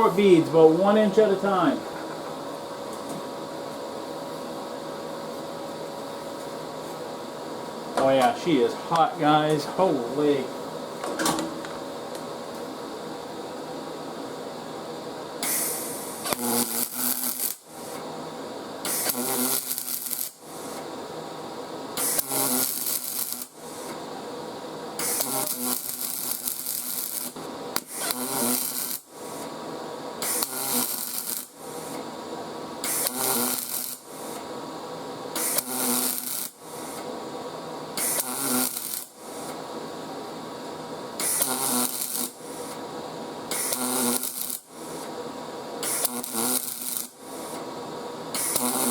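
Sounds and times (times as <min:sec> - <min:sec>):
crackling welding arc: 0:00.0 - 0:01.8, 0:15.4 - 0:48.9
steady hum: 0:00.0 - 0:48.4.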